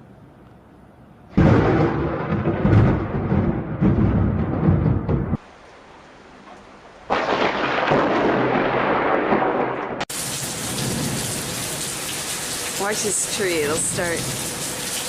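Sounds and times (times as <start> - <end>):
thunder clap rumbling: 1.3 - 5.5, 6.8 - 15.0
rain: 5.4 - 15.0.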